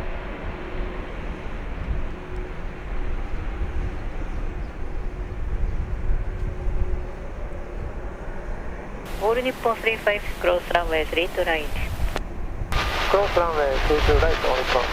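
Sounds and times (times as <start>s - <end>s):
jet engines rumbling: 0.0s - 14.9s
faint steady tone: 6.2s - 14.9s.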